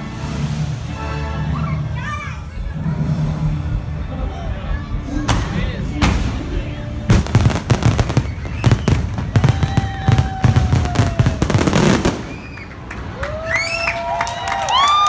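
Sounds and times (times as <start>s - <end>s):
fireworks bangs and crackling: 5.3s - 13.2s.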